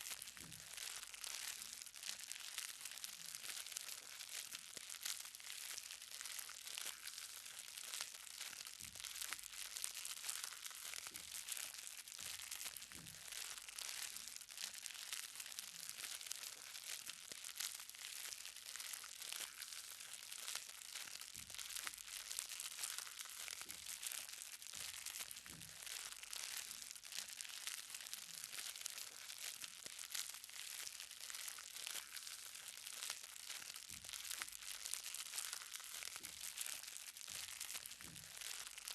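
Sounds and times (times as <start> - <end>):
rain pattering on ground: 10.1 - 38.9.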